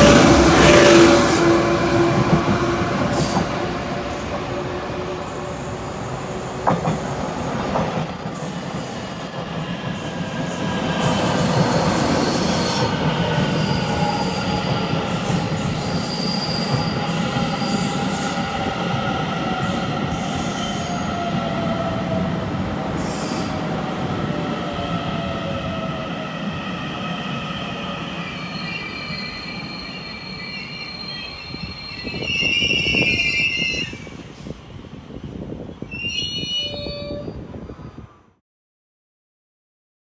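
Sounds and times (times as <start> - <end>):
train rumble: 0.0 - 28.0
train wheels squealing: 8.4 - 9.7, 10.9 - 18.6, 19.7 - 21.3, 23.0 - 23.6, 26.0 - 34.5, 35.8 - 37.9.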